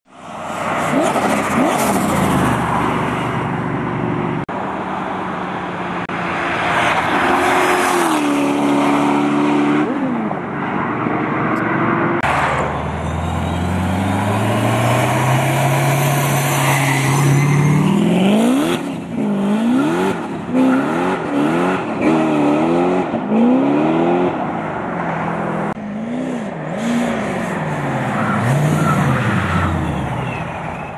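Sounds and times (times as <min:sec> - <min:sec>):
car engine revving hard: 0:17.7 - 0:24.3.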